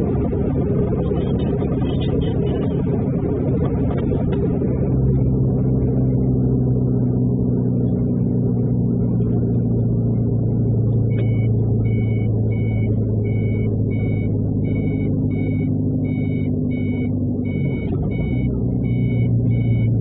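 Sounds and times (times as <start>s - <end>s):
truck engine droning: 0.0s - 20.0s
repeating electronic beep: 11.1s - 20.0s.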